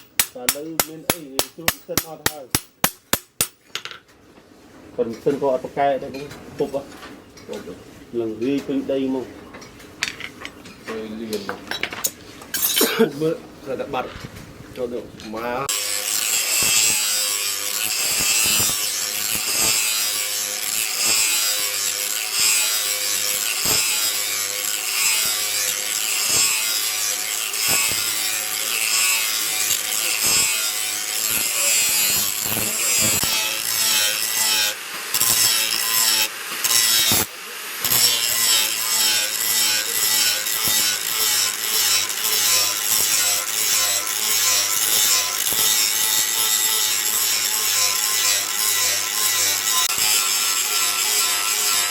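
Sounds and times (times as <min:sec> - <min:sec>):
file rasping on steel blade: 0:15.7 - 0:51.9.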